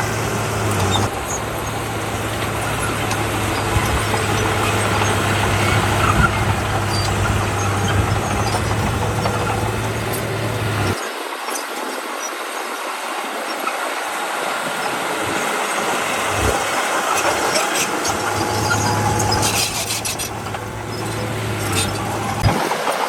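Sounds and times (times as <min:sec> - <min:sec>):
diesel engine running: 0:00.0 - 0:11.0, 0:13.7 - 0:23.0
low engine hum: 0:00.0 - 0:11.0, 0:14.8 - 0:23.0
rushing clattering noise: 0:00.0 - 0:11.0, 0:14.8 - 0:23.0
metallic rattling: 0:16.2 - 0:22.6.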